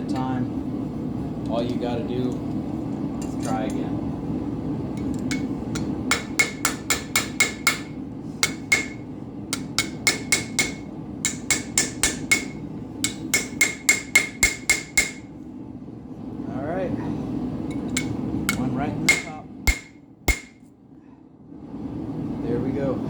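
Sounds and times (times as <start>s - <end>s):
hammer striking steel on anvil: 5.3s - 15.3s, 17.7s - 20.6s.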